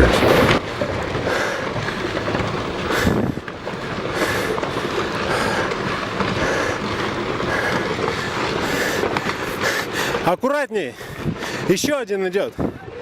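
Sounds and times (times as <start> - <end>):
volcano rumbling: 0.0 - 10.3.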